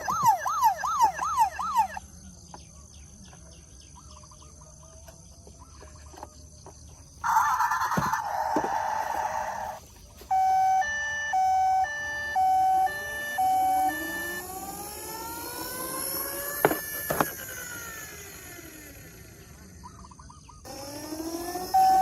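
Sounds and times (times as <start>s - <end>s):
toy electronic siren: 0.0s - 2.1s, 7.2s - 20.0s, 20.6s - 22.0s.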